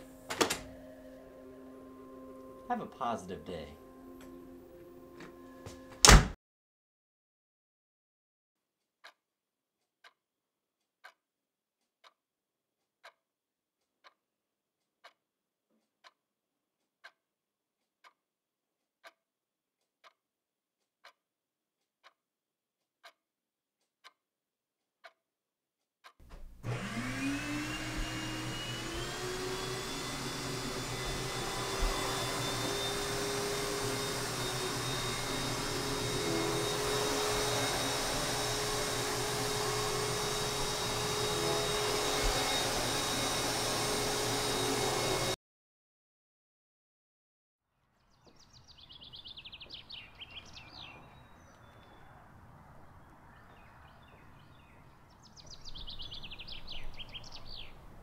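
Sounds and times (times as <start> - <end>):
vacuum cleaner motor whine: 26.5 - 45.4.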